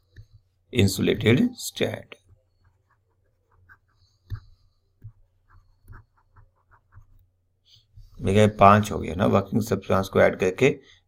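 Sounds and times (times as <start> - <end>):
pen scratching paper: 2.3 - 7.3.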